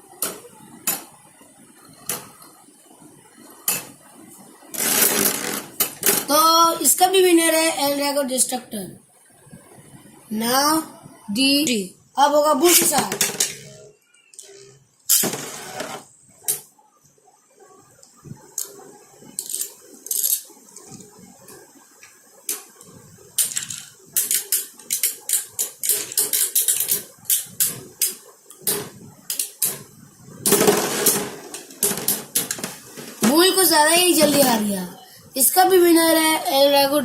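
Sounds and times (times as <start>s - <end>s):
spinning tops launching: 30.4s - 32.6s.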